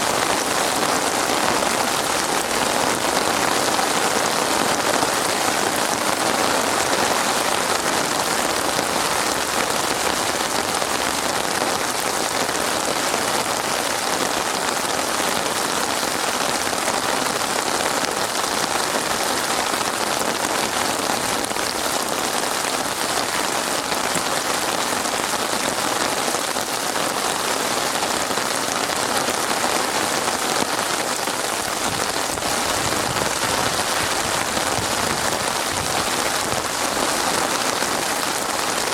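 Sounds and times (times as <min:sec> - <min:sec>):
steady rain patter: 0:00.0 - 0:38.9.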